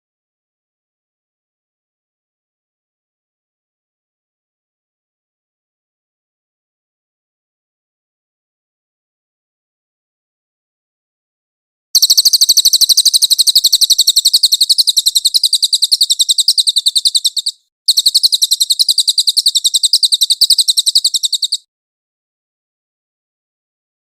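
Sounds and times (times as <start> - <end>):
rapid high bird trill: 12.0 - 21.7.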